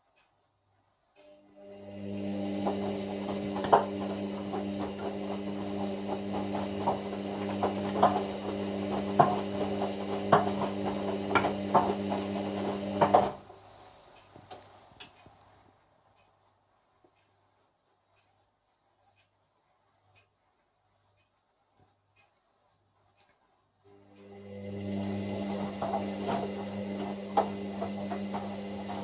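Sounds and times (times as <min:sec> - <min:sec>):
washer drum motor humming: 0:01.2 - 0:13.6, 0:23.9 - 0:29.0.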